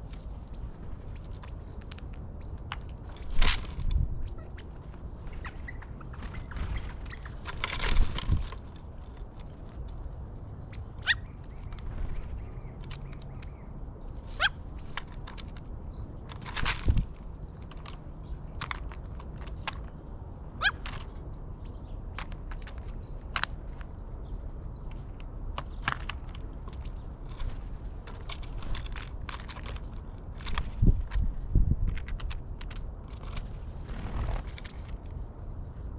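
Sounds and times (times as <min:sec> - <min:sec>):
steady low rumble: 0:00.0 - 0:14.8
birds tapping and clicking: 0:00.0 - 0:35.5.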